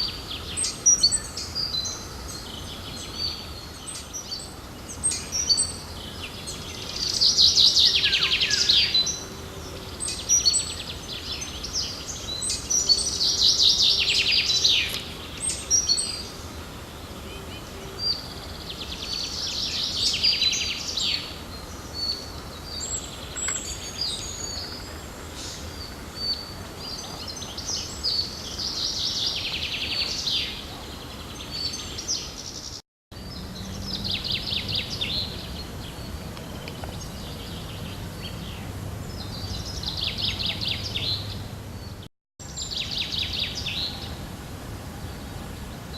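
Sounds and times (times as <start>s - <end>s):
bird song phrase: 0.0s - 44.2s
birds chirping: 0.0s - 44.2s.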